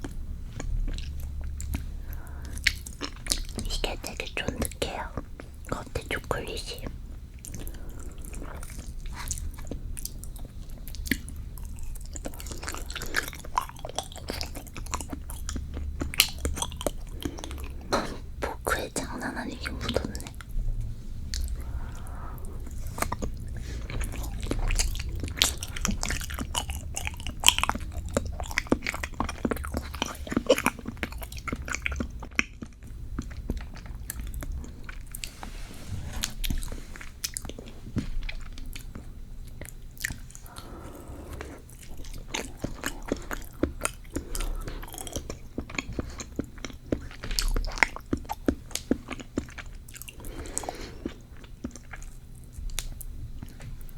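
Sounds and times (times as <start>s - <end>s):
close-miked chewing: 0.0s - 53.9s.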